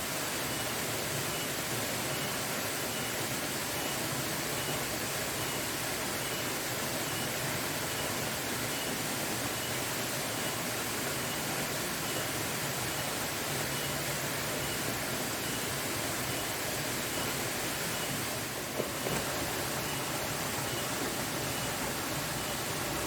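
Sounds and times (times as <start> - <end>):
waterfall rushing: 6.8 - 23.0
faint high peep: 11.2 - 18.4, 19.0 - 23.0.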